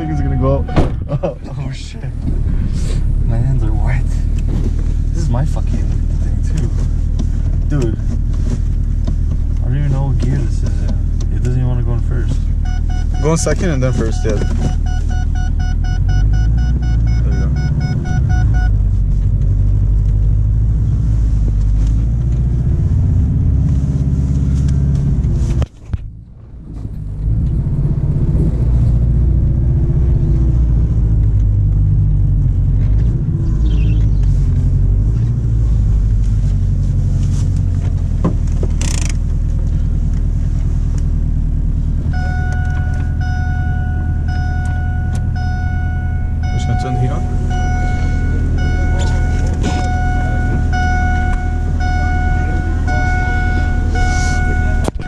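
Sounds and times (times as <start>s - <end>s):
short beeping tones: 0.0s - 1.1s, 12.6s - 18.8s, 42.1s - 55.0s
car engine running: 0.0s - 55.0s.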